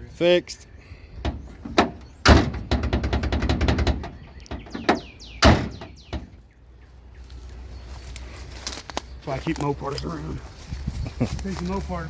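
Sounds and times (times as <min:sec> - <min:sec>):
sharp knocks on car door: 0:01.2 - 0:06.3
car door clicking: 0:01.3 - 0:06.3.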